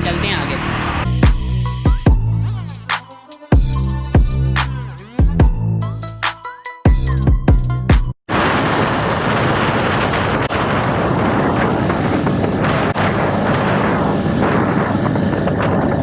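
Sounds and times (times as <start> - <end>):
wind buffeting microphone: 8.3 - 16.0.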